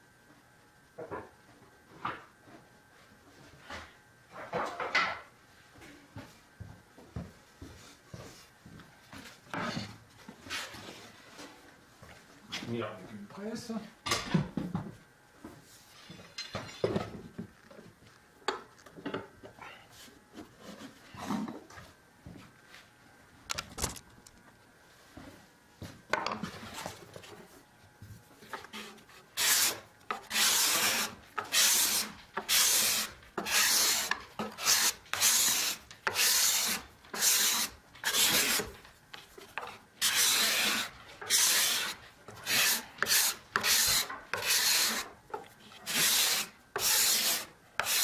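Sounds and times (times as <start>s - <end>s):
cabinet scraper scraping wood: 28.5s - 45.1s, 45.7s - 48.0s.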